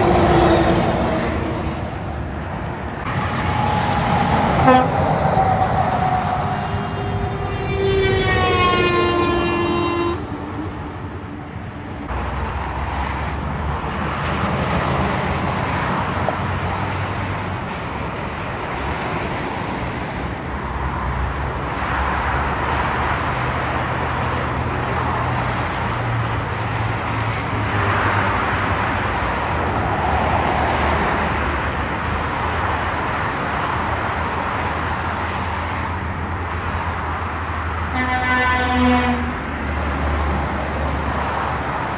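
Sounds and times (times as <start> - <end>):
road traffic with trucks: 0.0 - 41.9
vehicle horn: 3.0 - 10.4, 37.9 - 39.5.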